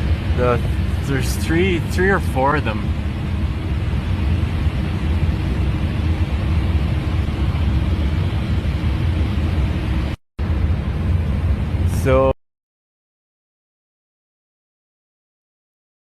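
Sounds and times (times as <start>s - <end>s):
cockpit airflow and engine noise: 0.0s - 12.4s.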